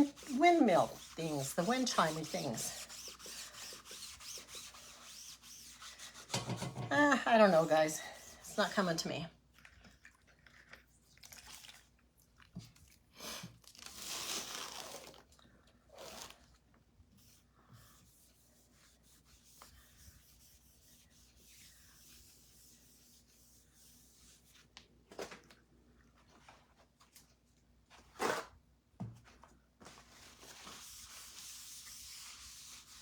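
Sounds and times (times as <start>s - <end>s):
faint rubbing and scraping: 0.0s - 9.1s.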